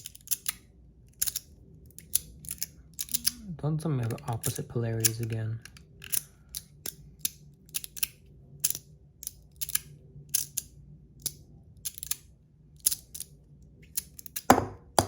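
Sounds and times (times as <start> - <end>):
magnetic fidget slider clicking: 1.2 - 3.4.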